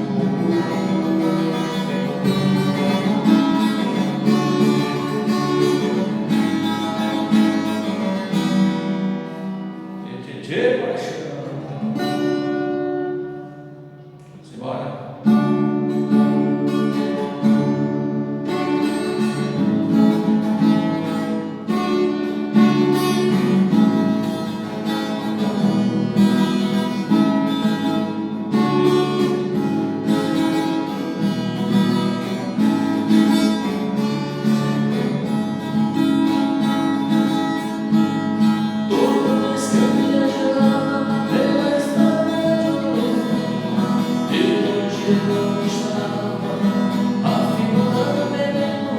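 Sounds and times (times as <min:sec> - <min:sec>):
sung melodic line: 0:00.0 - 0:10.0, 0:15.3 - 0:48.9
acoustic guitar strumming: 0:00.0 - 0:48.9
choir-like backing voices: 0:38.9 - 0:48.9.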